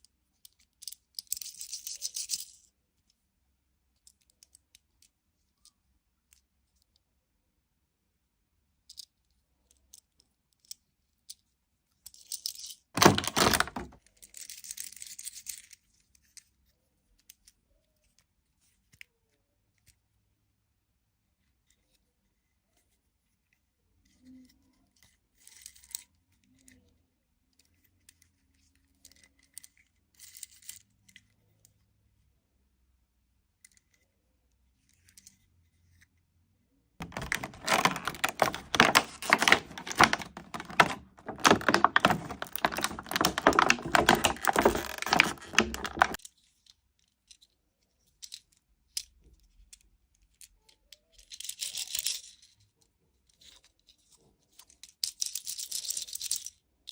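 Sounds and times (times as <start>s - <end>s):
packaging clicks and rustles: 13.0s - 14.0s, 37.0s - 46.2s
packaging crinkling and tearing: 13.0s - 14.0s, 37.0s - 46.2s.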